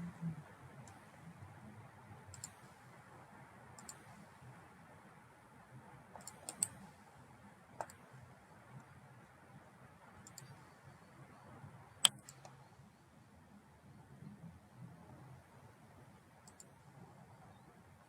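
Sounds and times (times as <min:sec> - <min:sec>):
faint room hum: 0:00.0 - 0:18.0
computer mouse clicking: 0:00.8 - 0:01.2, 0:02.3 - 0:02.8, 0:03.8 - 0:04.2, 0:06.1 - 0:07.0, 0:07.8 - 0:08.1, 0:10.2 - 0:10.6, 0:12.0 - 0:12.6, 0:16.4 - 0:16.8.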